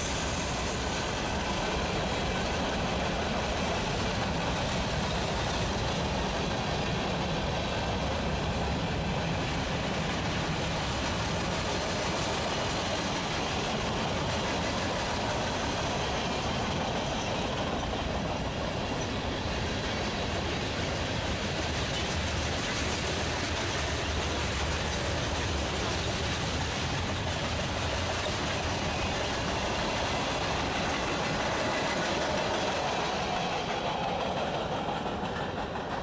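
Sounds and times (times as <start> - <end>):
freight train rolling on rails: 0.0 - 36.0.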